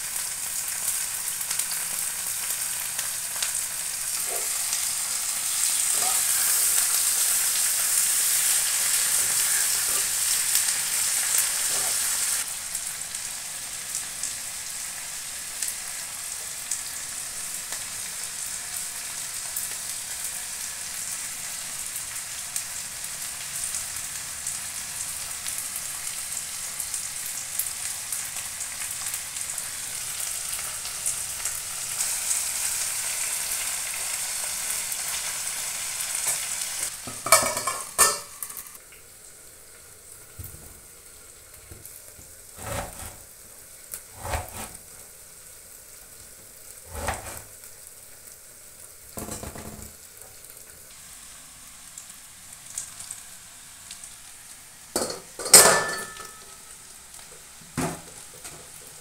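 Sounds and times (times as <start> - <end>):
vegetables sizzling in a pan: 0.0 - 59.0
knife cutting on a board: 42.6 - 43.2, 44.2 - 44.8.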